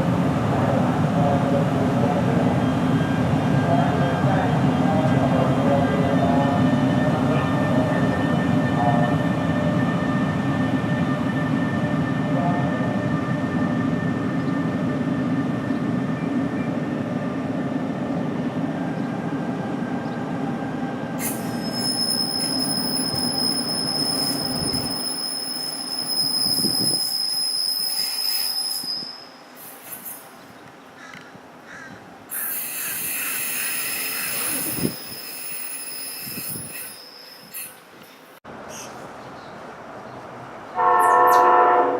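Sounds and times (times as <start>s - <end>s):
wheels squealing on rail: 21.2s - 30.3s, 32.3s - 39.0s.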